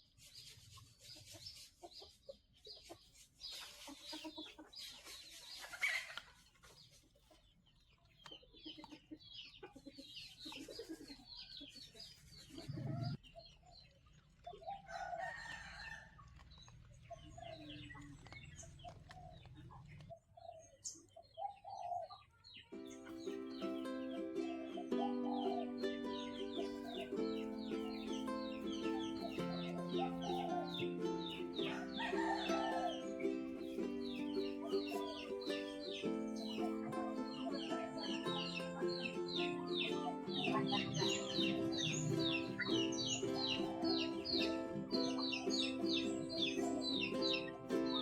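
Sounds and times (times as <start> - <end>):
chickens clucking: 0.0 - 48.0
background music: 22.8 - 48.0
high chirps: 22.8 - 48.0.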